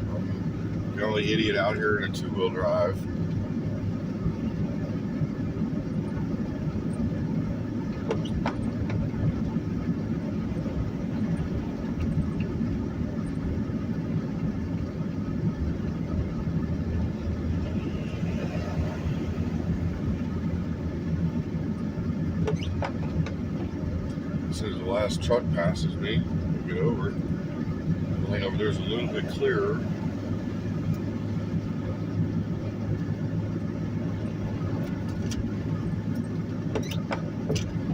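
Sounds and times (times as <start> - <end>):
in-cabin road and engine noise: 0.0 - 37.9.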